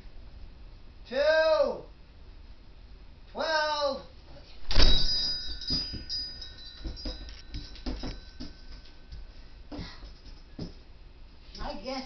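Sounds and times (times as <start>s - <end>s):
bell-like chime: 4.8s - 9.2s
light knocks and rattles: 4.8s - 10.8s.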